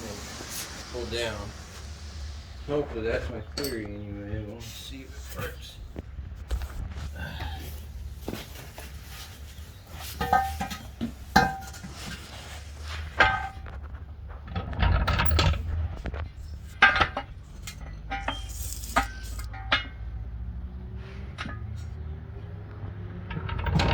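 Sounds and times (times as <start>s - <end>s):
metal tools clanking: 3.0s - 5.6s, 8.3s - 12.2s, 16.4s - 22.3s.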